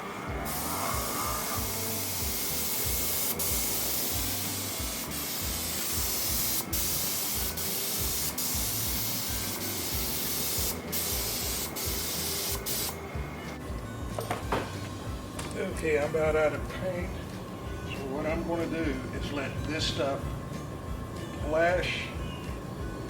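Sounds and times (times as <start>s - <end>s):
paint spray gun hissing: 0.4s - 13.1s.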